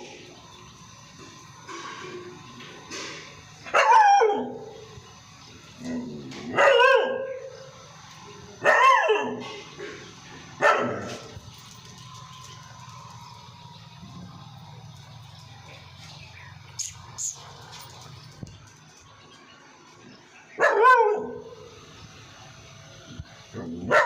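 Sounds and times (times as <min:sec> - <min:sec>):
dog barking: 0:03.7 - 0:04.6, 0:06.5 - 0:07.5, 0:08.6 - 0:09.5, 0:10.6 - 0:11.3, 0:20.6 - 0:21.5, 0:23.7 - 0:24.0.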